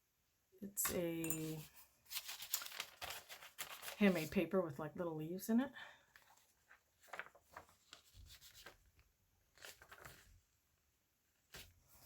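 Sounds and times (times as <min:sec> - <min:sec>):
paper rustling by hand: 0:01.3 - 0:04.4, 0:06.2 - 0:10.6, 0:11.4 - 0:12.0.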